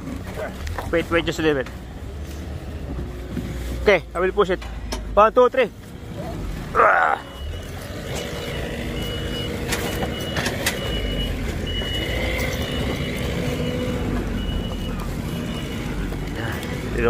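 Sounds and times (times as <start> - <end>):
reversing beeper: 6.8 - 17.0.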